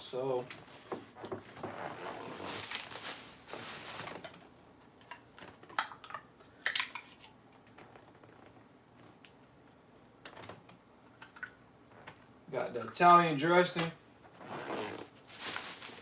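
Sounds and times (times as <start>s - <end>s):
plastic containers rustling: 0.4s - 4.6s, 12.8s - 16.0s.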